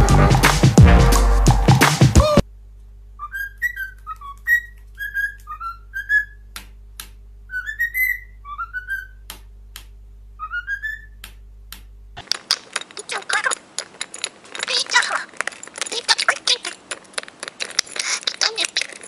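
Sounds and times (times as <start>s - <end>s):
low electrical hum: 2.4s - 19.0s
parrot whistling: 3.2s - 6.4s, 7.5s - 9.2s, 10.4s - 11.2s.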